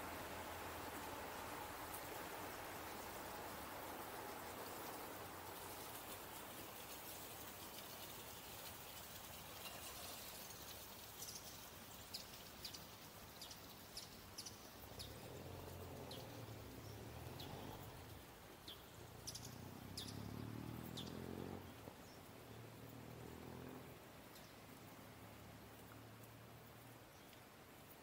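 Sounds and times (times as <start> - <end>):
small birds chirping: 0.7 - 28.0
low engine hum: 14.8 - 27.0.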